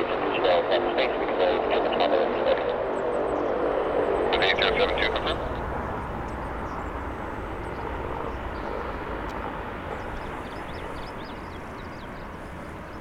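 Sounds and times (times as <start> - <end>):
jet airliner engines rushing: 0.0 - 13.0
small birds chirping: 2.9 - 13.0.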